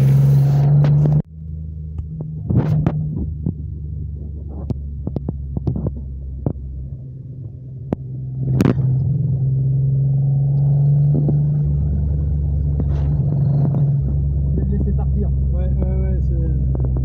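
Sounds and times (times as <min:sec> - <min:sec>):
car engine running: 0:00.0 - 0:17.0
sharp clicks and knocks: 0:01.9 - 0:06.7.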